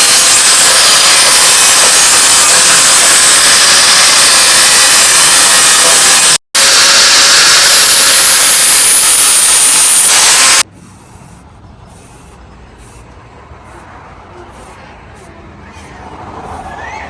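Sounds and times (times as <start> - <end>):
power grinder on steel blade: 0.0 - 11.2
short rasping strokes: 9.1 - 16.8.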